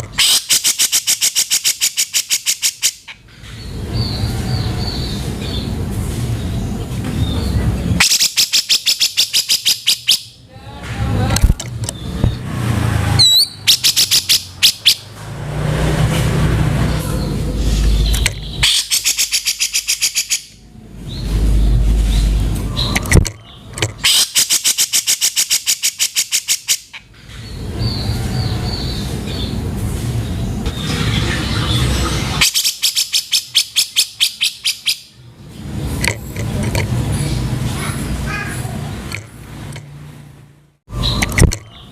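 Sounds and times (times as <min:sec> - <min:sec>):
bird harsh chattering calls: 0:00.0 - 0:05.8, 0:06.7 - 0:10.4, 0:13.1 - 0:15.2, 0:16.8 - 0:29.6, 0:30.6 - 0:35.2.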